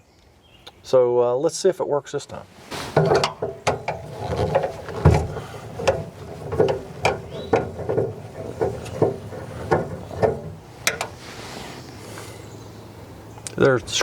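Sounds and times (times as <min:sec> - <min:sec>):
hand tool clicking and creaking: 0:03.0 - 0:11.2.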